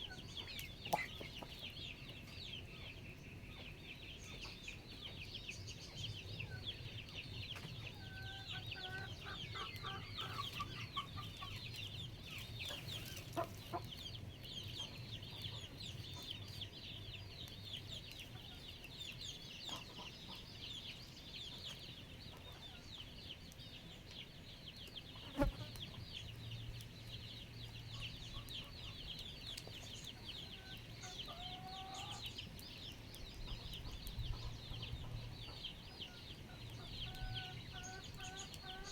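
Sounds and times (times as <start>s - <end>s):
chickens clucking: 0.0s - 3.0s, 3.6s - 23.2s, 27.4s - 38.9s
high chirping chorus: 8.0s - 21.6s.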